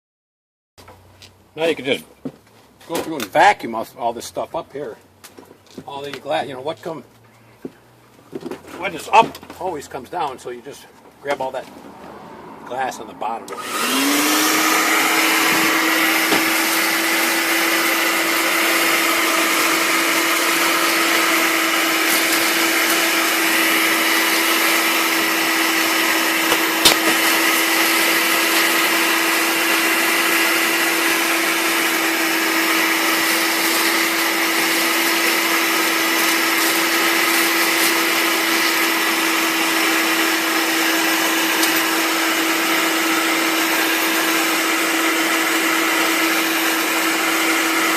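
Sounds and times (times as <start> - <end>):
vacuum cleaner running: 13.5 - 47.9.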